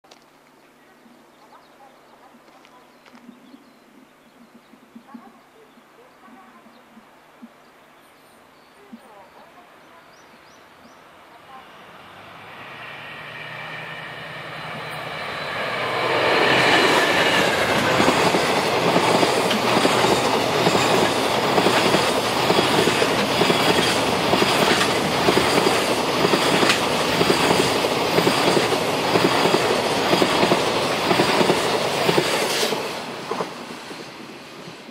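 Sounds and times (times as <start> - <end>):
diesel locomotive engine passing: 11.0 - 34.9
train wheels clickety-clack: 14.9 - 33.6.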